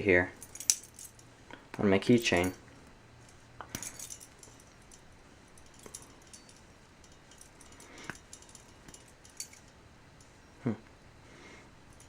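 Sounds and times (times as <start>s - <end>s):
keychain clicks and clinks: 0.4s - 1.2s, 2.2s - 2.6s, 3.7s - 5.0s, 5.6s - 9.7s.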